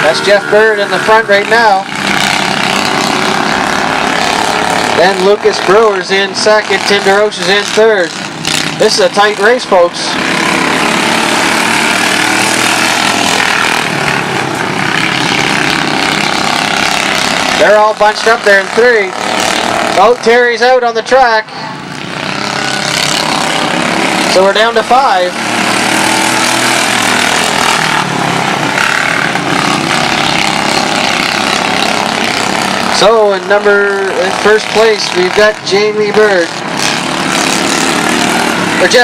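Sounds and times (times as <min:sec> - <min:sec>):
racing lawn mower engines: 0:00.0 - 0:39.0.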